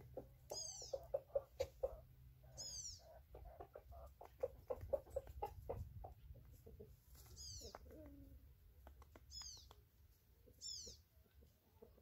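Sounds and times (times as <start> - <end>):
bird high falling calls: 2.5 - 3.1.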